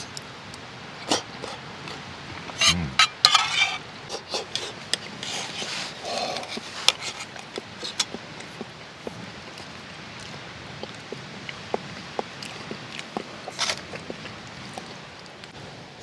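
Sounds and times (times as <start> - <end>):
utensils clinking on cookware: 2.5 - 3.8.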